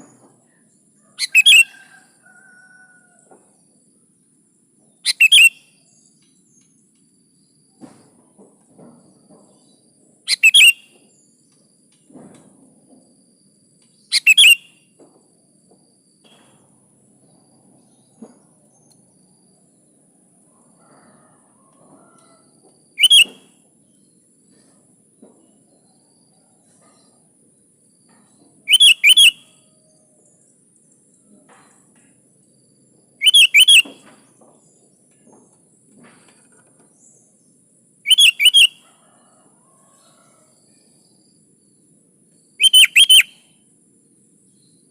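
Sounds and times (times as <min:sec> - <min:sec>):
bulbul calling: 0:01.2 - 0:01.8, 0:05.0 - 0:05.6, 0:10.3 - 0:10.8, 0:14.1 - 0:14.6, 0:23.0 - 0:23.4, 0:28.7 - 0:29.4, 0:33.2 - 0:34.1, 0:38.1 - 0:38.8, 0:42.6 - 0:43.4.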